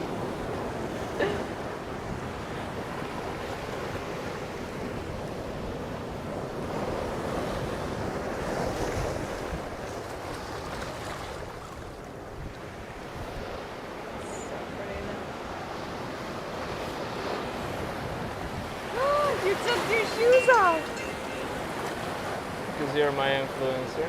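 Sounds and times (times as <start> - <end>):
sea waves washing on shore: 0.0 - 24.0
wind buffeting microphone: 15.0 - 22.8.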